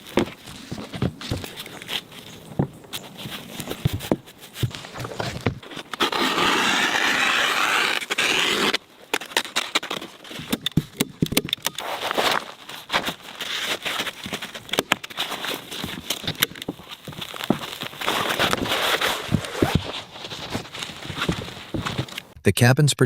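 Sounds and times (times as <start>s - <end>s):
loud scraping: 4.6s - 9.9s.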